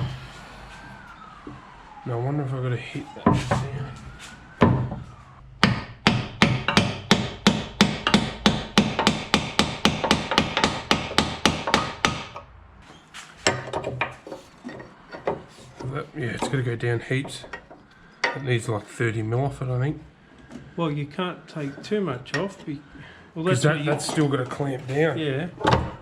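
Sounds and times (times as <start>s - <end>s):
hammer striking metal pin: 5.6s - 12.4s.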